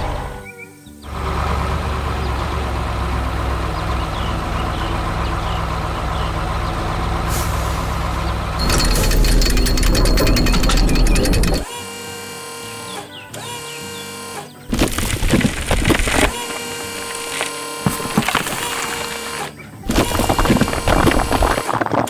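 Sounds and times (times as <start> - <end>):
heavy vehicle engine running: 1.1 - 11.7
rapid metallic clatter: 7.5 - 11.7.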